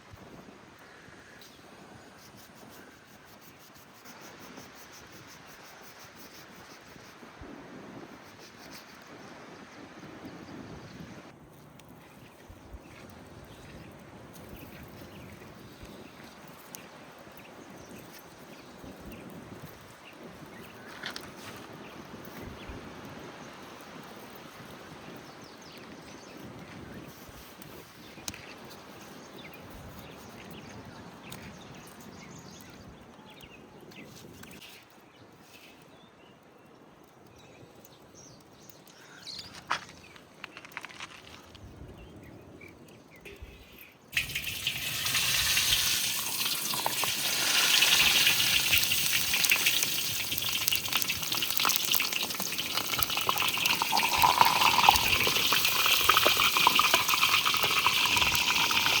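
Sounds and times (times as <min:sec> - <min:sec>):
food frying in hot oil: 0:44.2 - 0:59.0.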